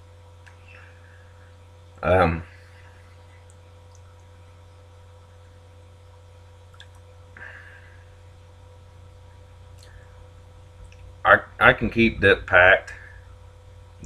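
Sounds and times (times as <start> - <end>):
low electrical hum: 0.0 - 14.0
faint clicks: 3.3 - 4.4, 6.7 - 7.5, 9.7 - 10.1, 10.8 - 11.1
breathy hiss: 7.4 - 8.2.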